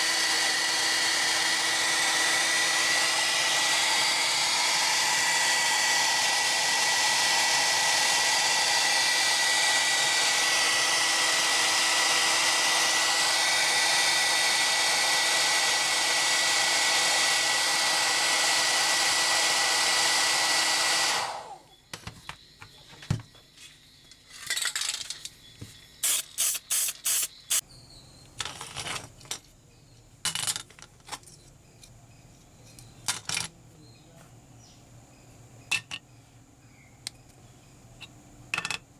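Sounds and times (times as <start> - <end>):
power tool whining: 0.0 - 21.7, 26.0 - 27.6
small metal parts clinking: 24.1 - 25.4.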